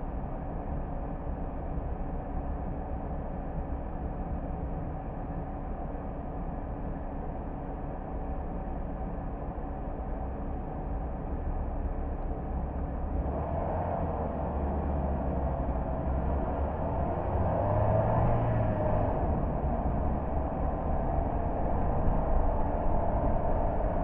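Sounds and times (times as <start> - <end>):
car driving on road: 0.0 - 24.0.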